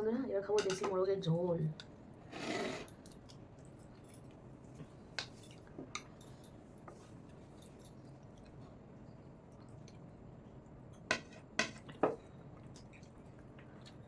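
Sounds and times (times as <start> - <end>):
faint eating sounds: 1.8 - 14.0
light clicks and clinks: 2.9 - 8.6.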